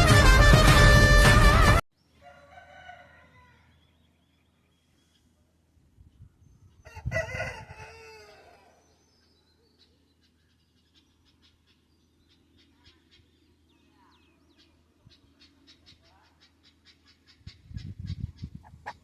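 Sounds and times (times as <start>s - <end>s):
rooster crowing: 2.2s - 3.8s, 6.8s - 8.8s
faint fowl calls: 9.8s - 19.0s.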